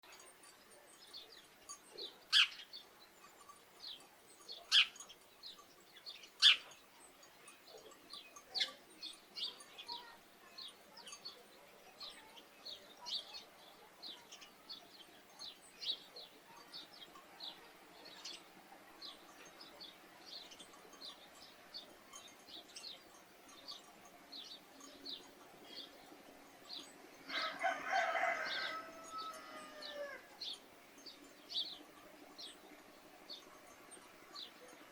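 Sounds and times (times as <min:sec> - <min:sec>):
sparrows chirping: 0:00.0 - 0:34.9
farm animal call: 0:02.0 - 0:02.7, 0:27.3 - 0:30.4.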